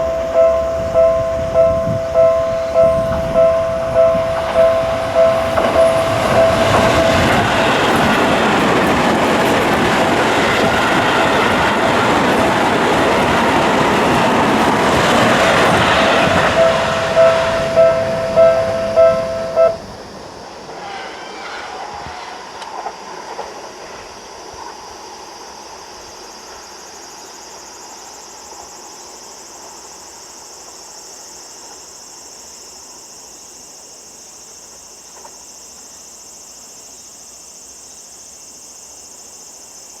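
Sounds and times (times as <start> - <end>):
train passing: 0.0 - 31.0
high-pitched insect chorus: 0.0 - 40.0.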